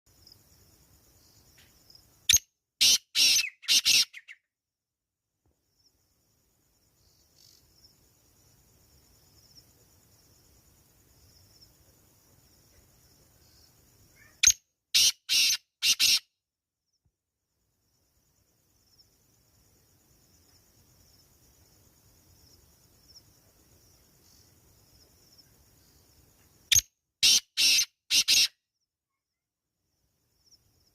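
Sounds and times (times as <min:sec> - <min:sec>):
bird calling harshly: 0:02.8 - 0:04.4, 0:14.2 - 0:16.2, 0:27.2 - 0:28.6.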